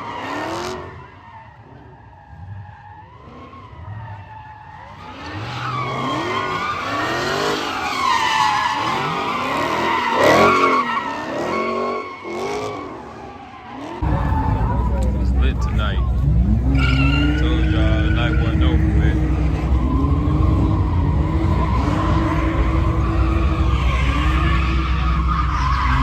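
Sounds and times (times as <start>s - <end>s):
car tires squealing: 0.0s - 26.0s
car engine revving: 13.7s - 26.0s.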